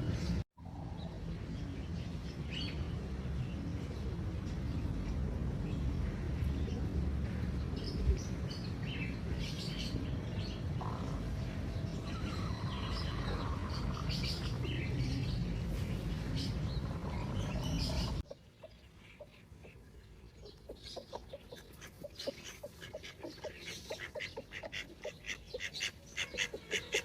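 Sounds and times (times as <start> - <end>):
small birds chirping: 7.8 - 27.0.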